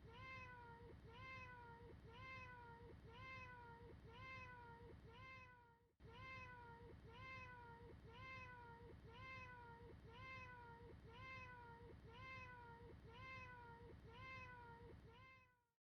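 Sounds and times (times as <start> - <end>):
cat meowing: 8.2 - 15.4.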